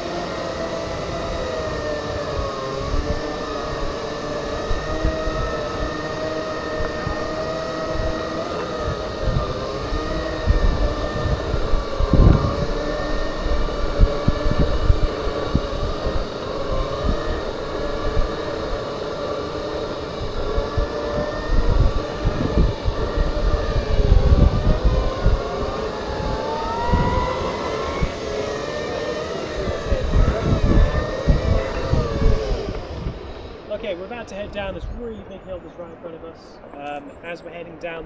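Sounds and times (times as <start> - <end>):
wind on microphone: 0.0 - 35.6
electric motors whining: 0.0 - 38.0.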